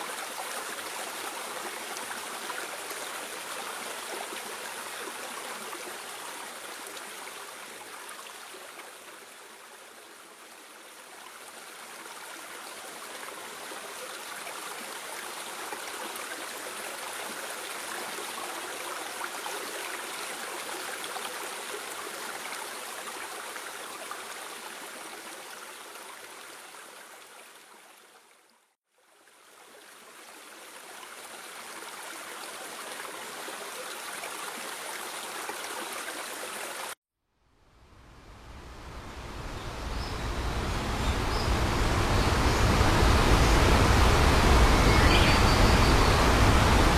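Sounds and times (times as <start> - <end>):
mountain stream rushing: 0.0 - 27.3, 37.7 - 46.9.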